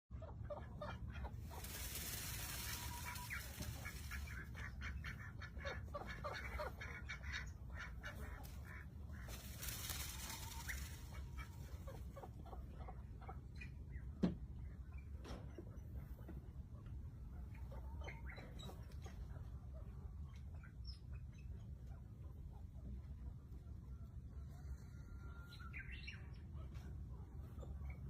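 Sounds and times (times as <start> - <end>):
birds chirping: 0.2 - 15.2.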